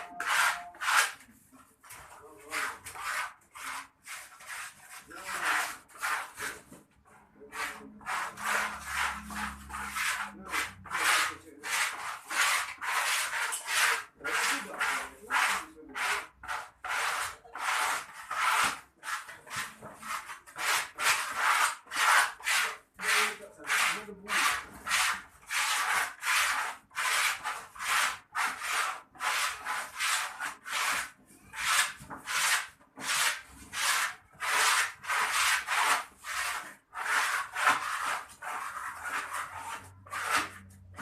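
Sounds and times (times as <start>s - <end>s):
rhythmic rasping scraping: 0.0s - 6.7s, 7.3s - 32.6s.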